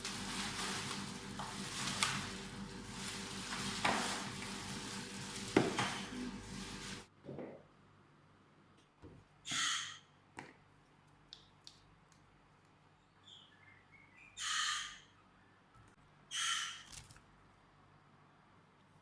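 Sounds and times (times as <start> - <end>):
faint bird chirps: 13.0 - 15.7
harsh hissing bird calls: 14.3 - 15.1.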